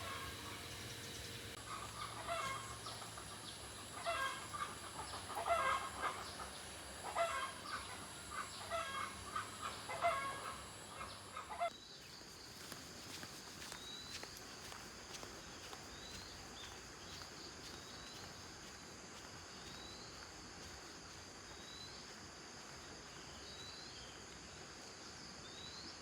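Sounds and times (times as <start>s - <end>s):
chickens clucking: 0.0s - 11.7s.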